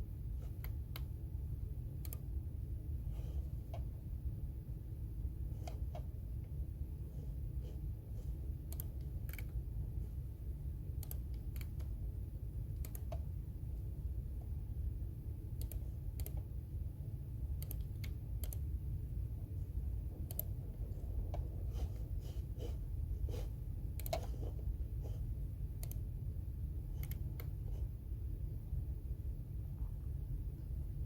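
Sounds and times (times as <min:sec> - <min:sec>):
low background hum: 0:00.0 - 0:31.0
keyboard typing clicks: 0:02.0 - 0:02.3, 0:08.6 - 0:09.6, 0:10.9 - 0:12.0, 0:12.7 - 0:13.4, 0:15.5 - 0:16.5, 0:17.5 - 0:18.7, 0:20.2 - 0:20.6, 0:23.9 - 0:24.5, 0:25.8 - 0:26.1, 0:26.9 - 0:27.6.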